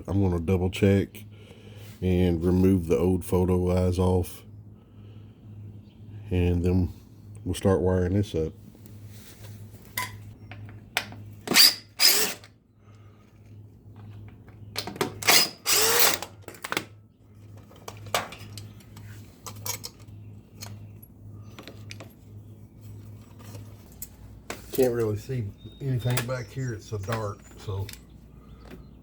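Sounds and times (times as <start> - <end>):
power drill running: 11.5 - 12.5, 15.2 - 16.3.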